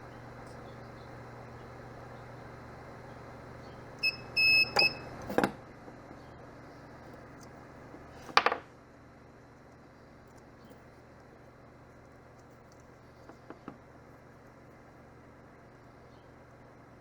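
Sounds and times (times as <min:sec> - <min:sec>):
spot welder beeping: 0:04.0 - 0:05.3.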